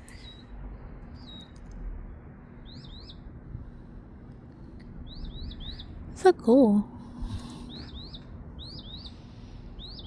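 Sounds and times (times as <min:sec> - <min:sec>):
mockingbird singing: 0:02.6 - 0:03.2, 0:05.0 - 0:06.0, 0:07.5 - 0:10.0.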